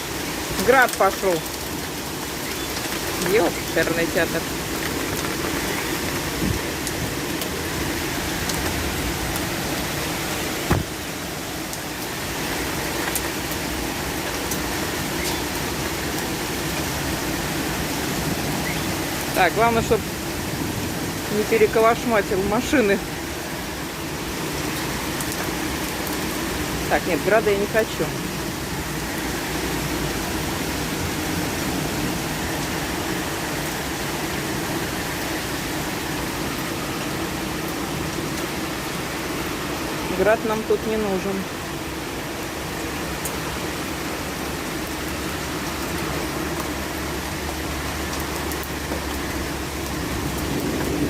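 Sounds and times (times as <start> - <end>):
hailstones ticking: 0.0 - 20.4, 21.0 - 30.0
heavy rain downpour: 0.0 - 51.0
loud knock: 10.7 - 10.9.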